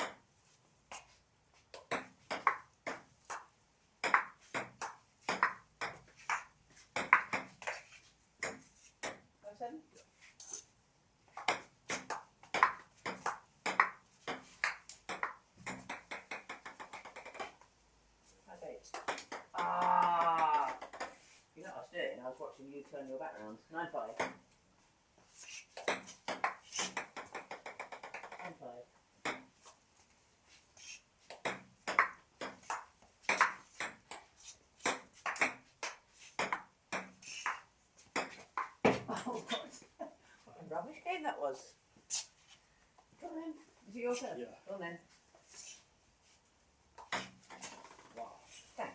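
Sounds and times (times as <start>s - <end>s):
table tennis ball hits: 0.0s - 0.2s, 1.8s - 9.2s, 11.4s - 17.6s, 18.9s - 21.2s, 24.2s - 24.4s, 25.7s - 28.6s, 29.2s - 29.5s, 31.3s - 39.2s, 47.0s - 48.3s.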